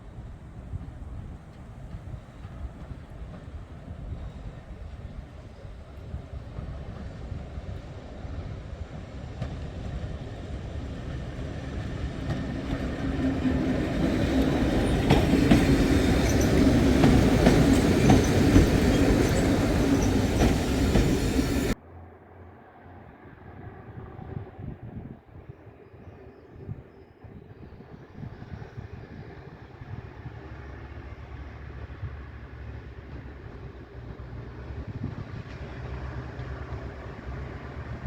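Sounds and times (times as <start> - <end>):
train passing: 0.0 - 38.0
wheels clicking over rail joints: 9.4 - 21.8
wheel squeal: 14.8 - 21.8.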